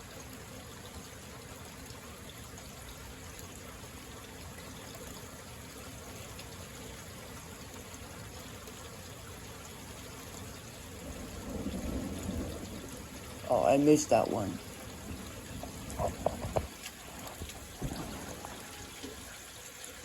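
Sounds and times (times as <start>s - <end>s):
steady rain falling: 0.0s - 20.0s
low rumble of thunder: 10.8s - 19.5s.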